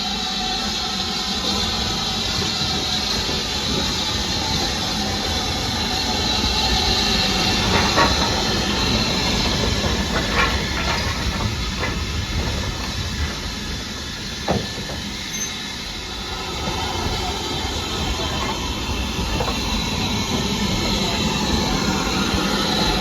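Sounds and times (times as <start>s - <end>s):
train hiss: 0.0s - 23.0s
sharp clanks and knocks: 7.6s - 8.6s, 9.8s - 12.7s, 14.4s - 15.6s.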